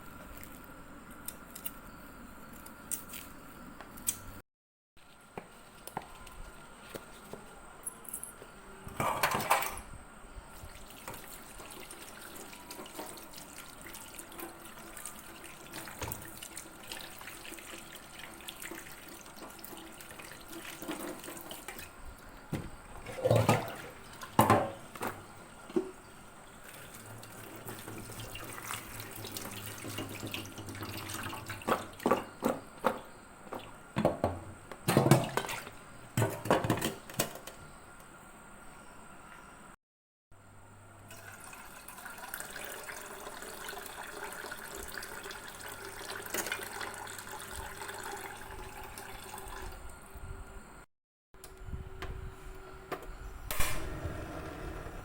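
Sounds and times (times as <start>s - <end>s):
tap water running into sink: 10.8s - 21.9s, 26.6s - 32.6s, 41.1s - 49.8s.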